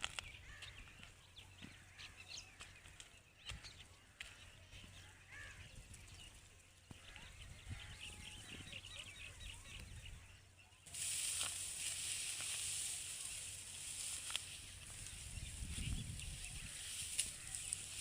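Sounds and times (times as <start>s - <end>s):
loud steady hiss: 10.9s - 18.0s.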